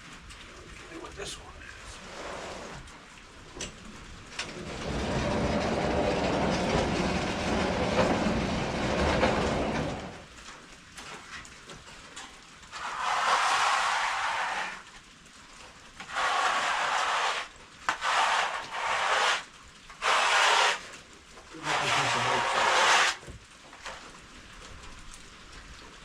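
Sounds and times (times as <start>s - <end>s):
bandsaw mill running: 4.5s - 10.2s, 16.1s - 20.9s, 21.6s - 23.2s.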